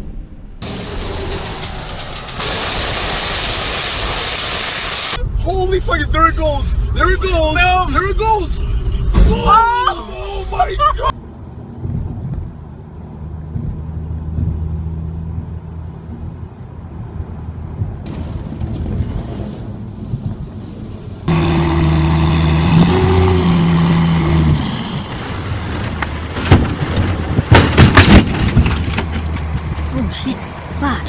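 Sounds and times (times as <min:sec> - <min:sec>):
heavy vehicle engines humming: 0:08.4 - 0:31.0
loud engine drone: 0:21.2 - 0:25.6
loud sharp bangs and knocks: 0:26.4 - 0:29.1.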